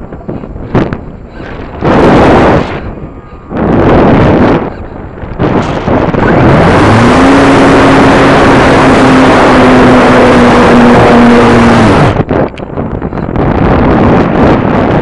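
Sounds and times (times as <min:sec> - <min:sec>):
rushing air noise: 0:00.0 - 0:15.0
model airplane engine running: 0:06.0 - 0:12.2.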